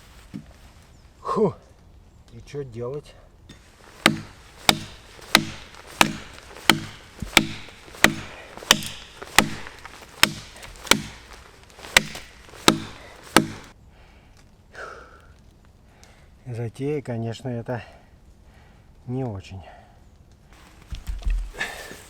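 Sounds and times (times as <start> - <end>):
axe chopping wet log: 3.5 - 13.7.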